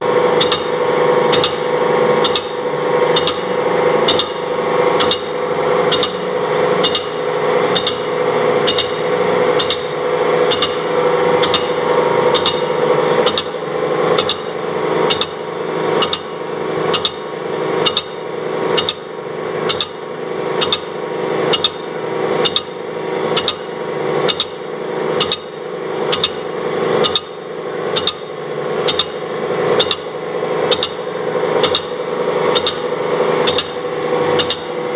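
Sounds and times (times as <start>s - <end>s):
machine humming: 0.0s - 34.9s
cutting tool ticking: 1.3s - 1.6s, 2.2s - 3.5s, 5.0s - 5.3s, 5.9s - 6.2s, 6.8s - 8.1s, 8.7s - 9.0s, 10.5s - 10.8s, 11.4s - 13.6s, 29.8s - 30.1s, 30.7s - 31.0s, 32.5s - 33.8s, 34.4s - 34.8s.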